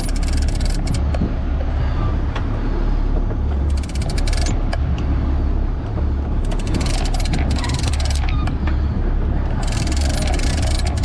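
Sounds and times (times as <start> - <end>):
boat engine rumbling: 0.0 - 11.0
rapid crisp clicking: 3.7 - 4.6.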